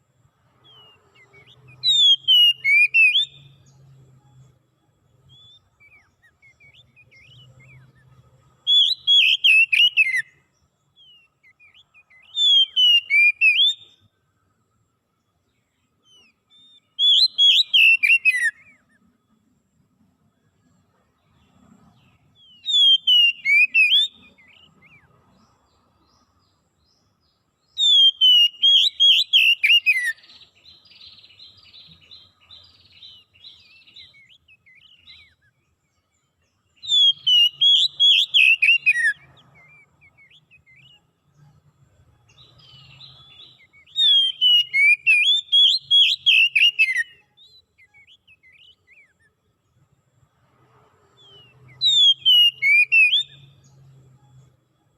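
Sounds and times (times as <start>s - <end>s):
soft bird twittering: 0.0s - 54.9s
songbird whistled phrases: 0.6s - 3.6s, 8.7s - 10.4s, 11.0s - 14.0s, 16.0s - 19.0s, 22.4s - 25.1s, 27.7s - 35.5s, 36.8s - 41.1s, 42.4s - 49.2s, 51.2s - 53.5s.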